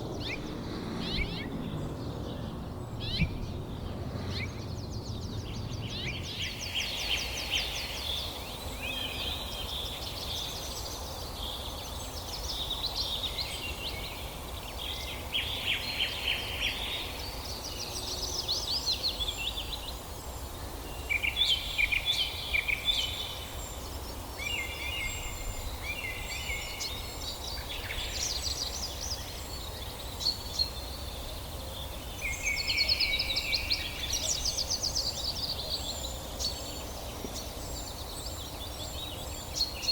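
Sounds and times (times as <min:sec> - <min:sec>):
low rumble: 0:00.0 - 0:06.6
songbirds chirping and trilling: 0:00.0 - 0:39.9.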